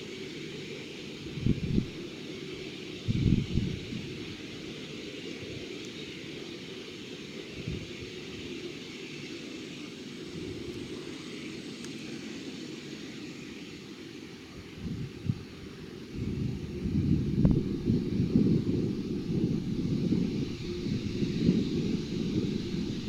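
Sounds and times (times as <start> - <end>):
jet engine rushing: 7.1 - 23.0.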